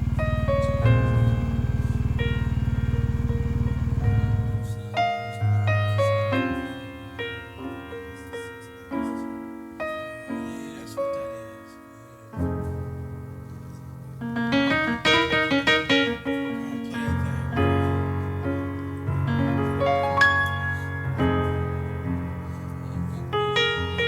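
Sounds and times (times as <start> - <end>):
slow piano melody: 0.0 - 24.0.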